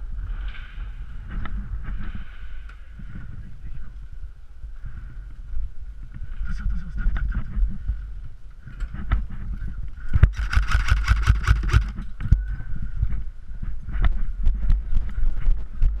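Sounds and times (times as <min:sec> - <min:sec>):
airsoft rifle burst: 0:10.2 - 0:12.0
gear knocking against camera: 0:10.2 - 0:12.0.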